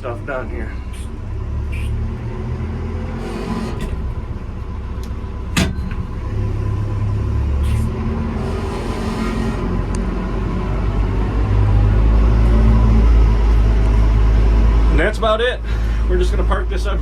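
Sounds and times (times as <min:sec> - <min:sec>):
diesel engine rumbling: 0:00.0 - 0:17.0
sharp metal clank: 0:05.6 - 0:06.3.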